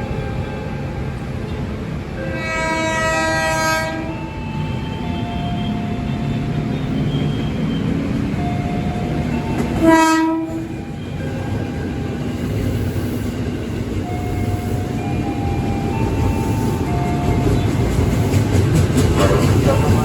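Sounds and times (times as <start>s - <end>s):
train rumbling past: 0.0s - 20.0s
train horn blast: 2.3s - 4.2s, 9.0s - 11.5s.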